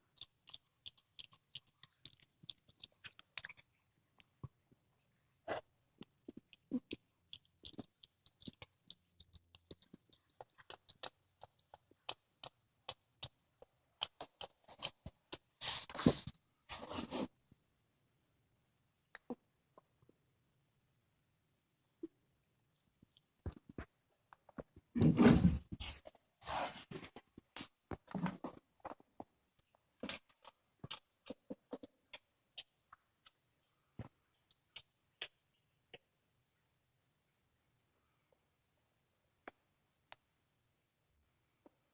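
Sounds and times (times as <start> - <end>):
cat chewing and crunching: 0.0 - 4.4, 6.0 - 16.2, 28.0 - 33.4.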